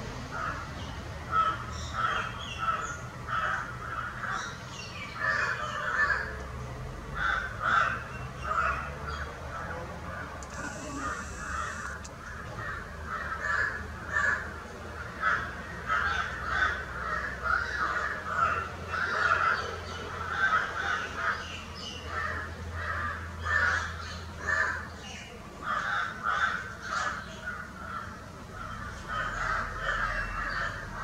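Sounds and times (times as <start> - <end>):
harsh bird calls: 0.4 - 6.3, 10.4 - 31.0
steady low hum: 10.4 - 12.8.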